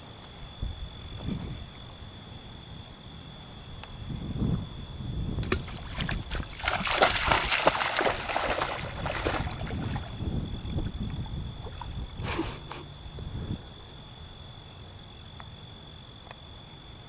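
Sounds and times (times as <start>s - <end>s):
high insect drone: 0.0s - 17.0s
water splashing and sloshing: 5.4s - 12.2s.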